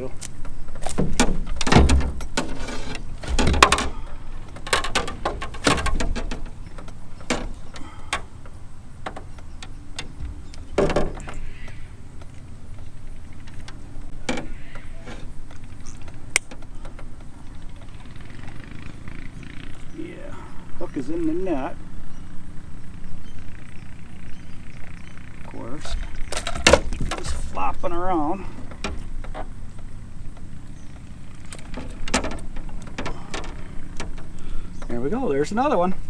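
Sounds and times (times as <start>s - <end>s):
fishing gear clattering: 0.0s - 19.0s, 25.8s - 35.0s.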